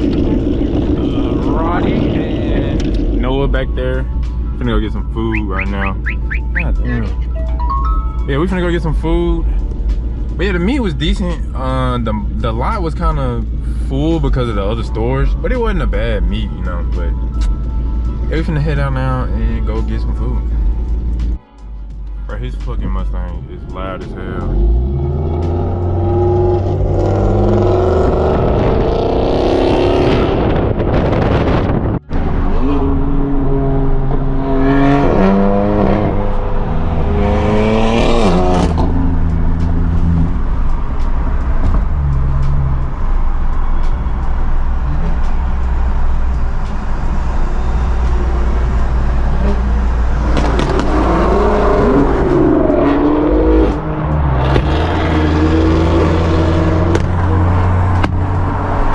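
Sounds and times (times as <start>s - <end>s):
car exhausts revving: 0.0s - 7.4s, 23.0s - 58.9s.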